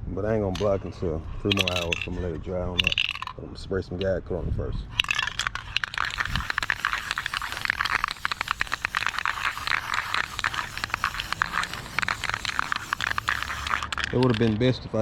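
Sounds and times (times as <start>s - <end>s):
aerosol can ball rattling: 1.5s - 2.2s, 2.8s - 3.4s, 4.9s - 14.7s.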